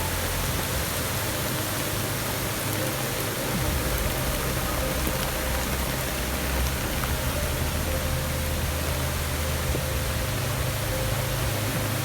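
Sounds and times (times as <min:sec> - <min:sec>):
heavy rain hissing: 0:00.0 - 0:12.0
rushing floodwater: 0:00.0 - 0:12.0.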